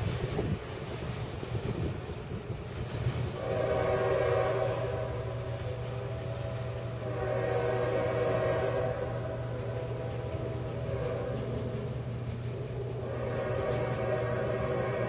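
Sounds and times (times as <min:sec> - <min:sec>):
freight train passing: 0:00.0 - 0:15.0
locomotive air horn chord: 0:03.4 - 0:15.0.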